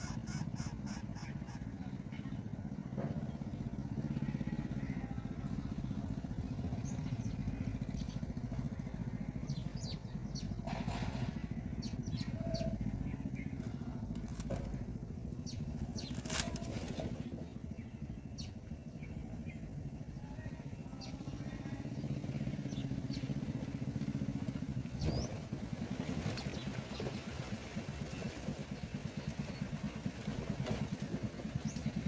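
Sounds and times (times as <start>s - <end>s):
motor rumbling: 0.0s - 32.0s.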